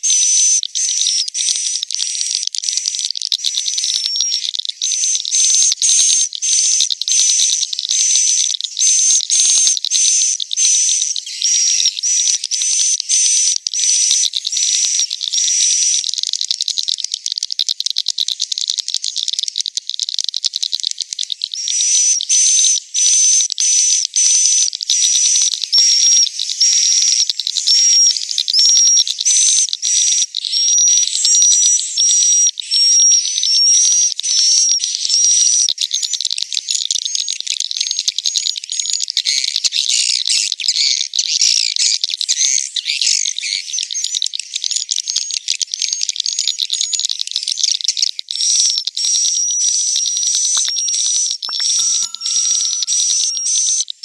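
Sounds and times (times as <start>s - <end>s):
swiftlets twittering: 49.4s - 54.0s.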